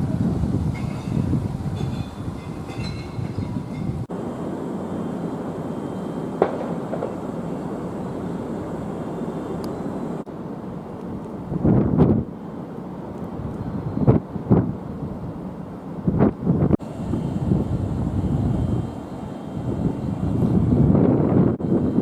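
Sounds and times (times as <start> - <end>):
train wheels rumbling: 0.0 - 22.0
faint high whines: 3.8 - 14.6, 16.7 - 22.0.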